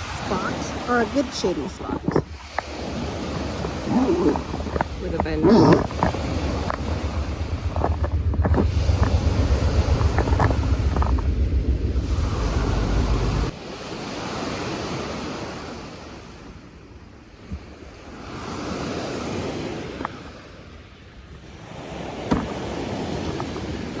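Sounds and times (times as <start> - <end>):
wind rumble on microphone: 0.0 - 13.6
lake waves washing on shore: 0.0 - 16.5.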